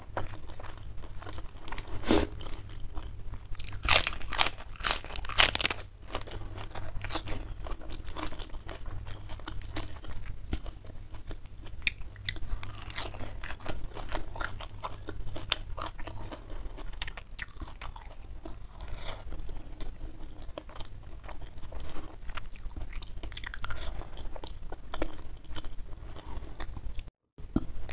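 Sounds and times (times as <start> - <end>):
chewing with small crunches: 0.0 - 27.9
crunchy bites into cabbage: 3.6 - 5.9.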